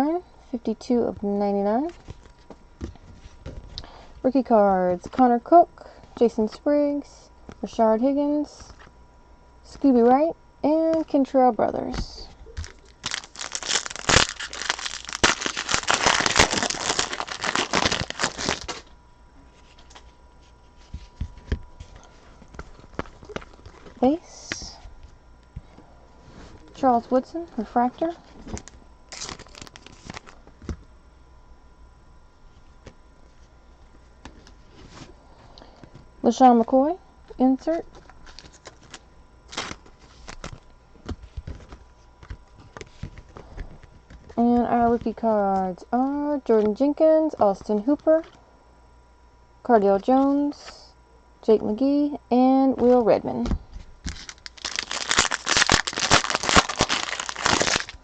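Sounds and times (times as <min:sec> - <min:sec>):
cards being flipped through: 0:12.6 - 0:18.9, 0:19.6 - 0:24.0, 0:37.9 - 0:45.1
foil wrapper crinkling and tearing: 0:12.6 - 0:18.9, 0:28.6 - 0:30.5, 0:38.2 - 0:40.6, 0:54.1 - 0:58.0.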